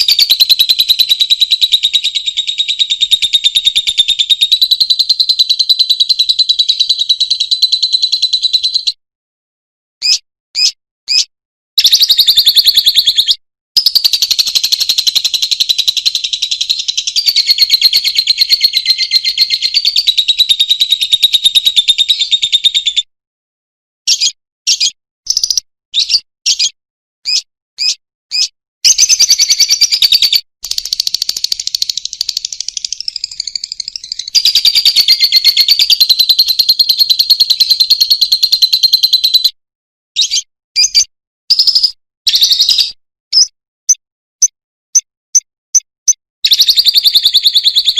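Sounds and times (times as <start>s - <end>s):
lovebird chattering trills: 0.0s - 8.8s, 10.0s - 22.8s, 27.3s - 39.6s
bird chirps: 0.0s - 9.0s, 10.0s - 23.1s, 24.1s - 39.6s, 40.2s - 47.9s.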